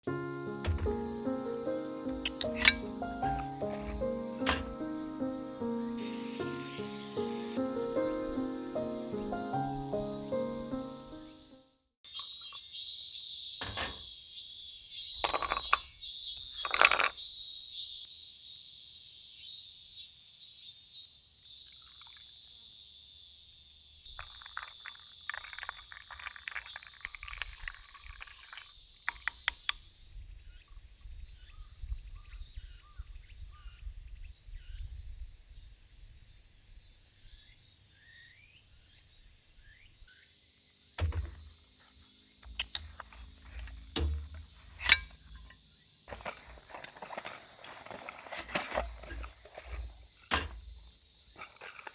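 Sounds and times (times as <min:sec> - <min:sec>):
high-pitched insect chorus: 0:00.1 - 0:11.5
camp gear clattering: 0:00.2 - 0:05.1, 0:13.6 - 0:14.1, 0:15.2 - 0:17.1, 0:41.0 - 0:51.9.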